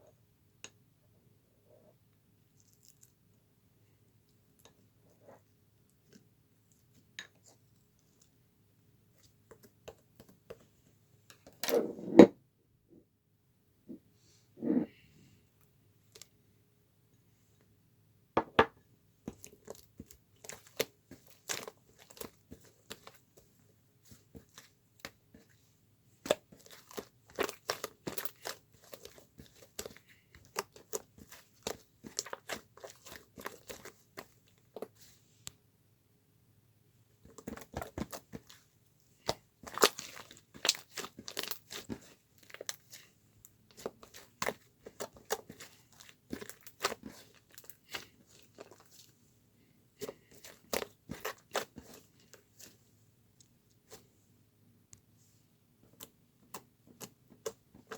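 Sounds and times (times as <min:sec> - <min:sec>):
crackling and crinkling: 0:02.5 - 0:03.4, 0:19.2 - 0:35.6, 0:37.2 - 0:54.3, 0:54.9 - 0:57.9.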